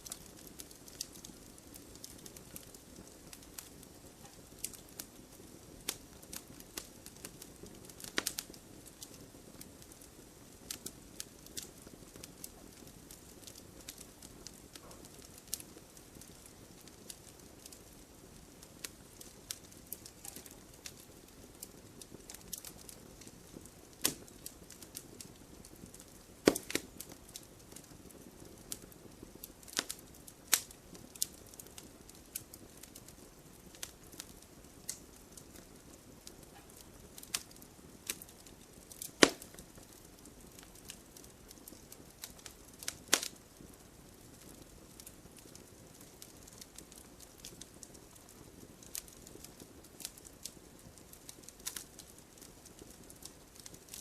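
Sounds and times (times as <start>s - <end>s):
faint low hiss: 0.0s - 54.0s
wood fire crackling: 0.0s - 54.0s
sharp pops from logs: 26.4s - 26.9s, 39.0s - 39.6s, 43.1s - 43.3s.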